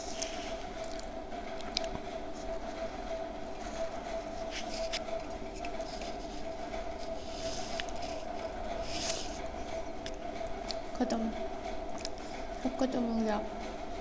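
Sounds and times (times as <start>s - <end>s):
steady hum: 0.0s - 14.0s
crunchy chewing crackles: 0.1s - 2.1s.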